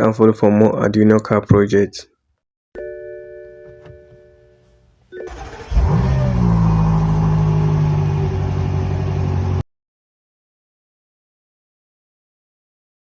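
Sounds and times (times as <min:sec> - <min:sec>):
car engine starting and idling: 0:05.2 - 0:09.6.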